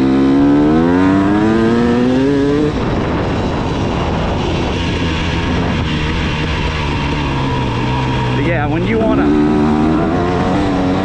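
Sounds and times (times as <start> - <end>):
dirt bike engine revving: 6.7 - 11.0.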